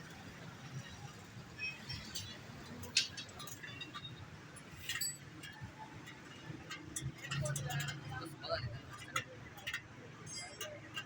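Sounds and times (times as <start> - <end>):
metal tools clinking: 4.7 - 5.6.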